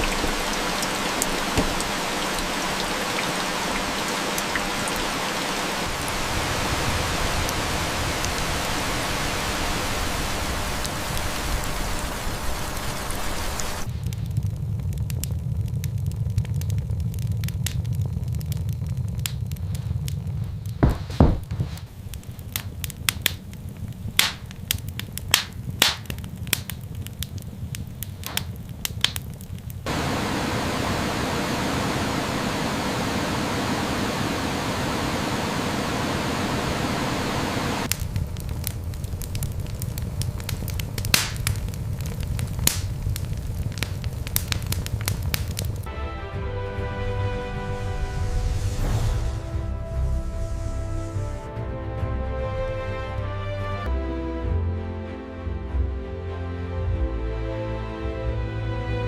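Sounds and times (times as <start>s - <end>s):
steady rushing hiss: 0.0s - 14.8s, 19.6s - 45.9s, 47.4s - 51.5s
sharp crackles and pops: 0.0s - 31.5s, 32.2s - 45.9s
low rumble: 9.8s - 23.0s, 46.5s - 52.1s.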